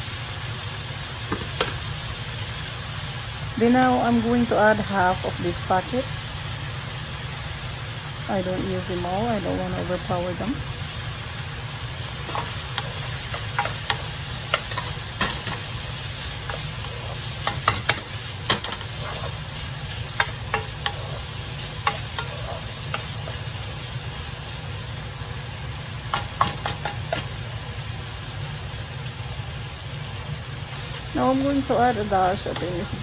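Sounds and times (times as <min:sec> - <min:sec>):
beef sizzling in a wok: 0:00.0 - 0:33.0
spatula scraping a pan: 0:12.2 - 0:23.7.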